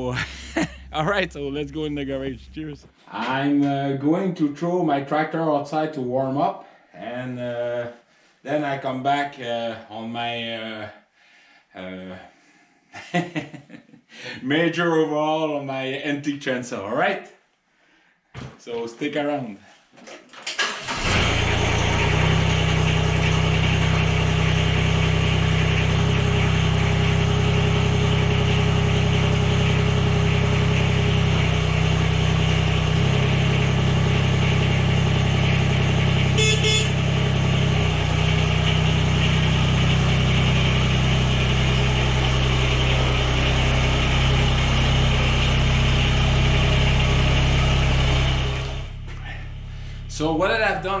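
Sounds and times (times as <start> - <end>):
tractor engine running: 0.0 - 2.9, 20.6 - 51.0.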